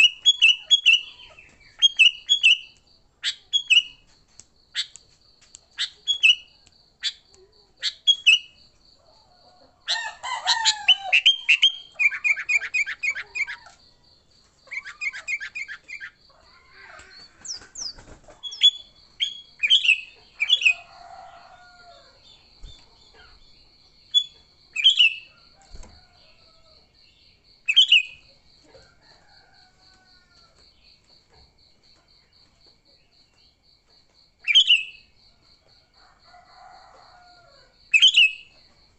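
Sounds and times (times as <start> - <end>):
birds calling and chattering: 9.9 - 13.8, 14.6 - 21.5.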